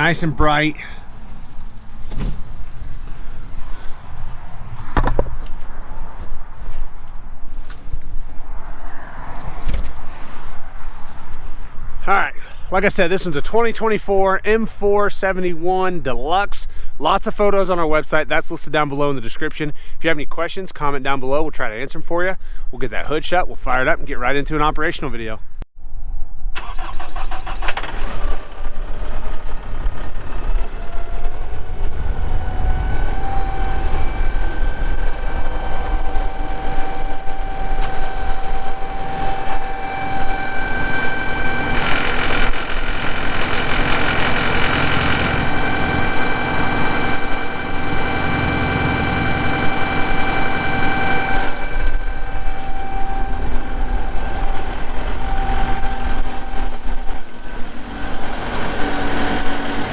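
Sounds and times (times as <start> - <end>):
tractor diesel engine idling: 0.0 - 4.7, 34.8 - 59.9
steady whine: 0.0 - 16.5, 27.9 - 59.9.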